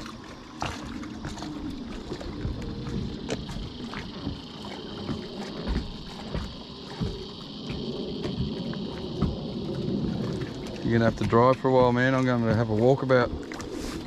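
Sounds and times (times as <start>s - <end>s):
insects buzzing: 0.0s - 14.0s
low rumble: 0.0s - 14.0s
knocks and thumps: 2.1s - 10.5s.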